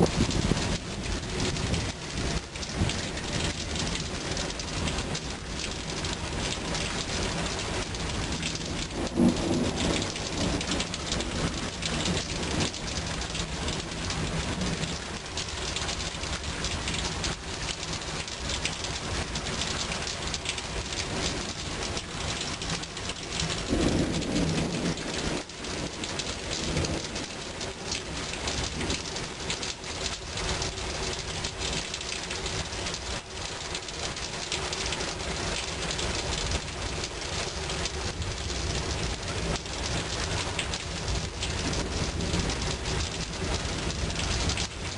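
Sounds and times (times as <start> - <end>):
low thunder rumble: 0.0 - 15.3, 22.6 - 29.1, 36.2 - 44.9
rain pouring: 0.0 - 44.9.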